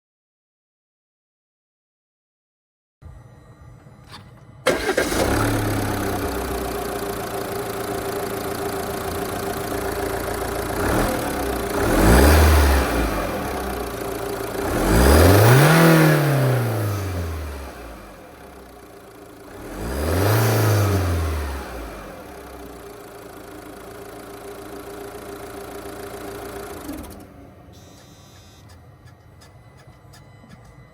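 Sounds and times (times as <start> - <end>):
diesel engine starting and revving: 4.1 - 28.1.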